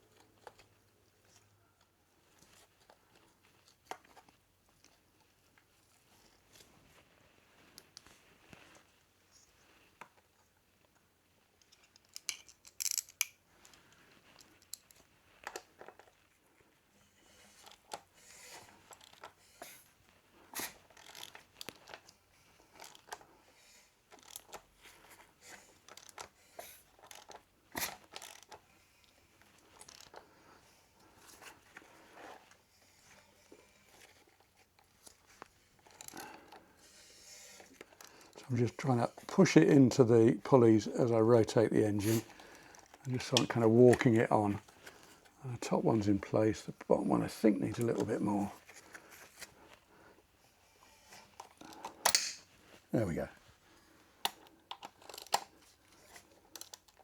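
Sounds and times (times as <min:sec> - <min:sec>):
hands fitting rubber belt: 0:11.6 - 0:16.3, 0:17.0 - 0:57.0.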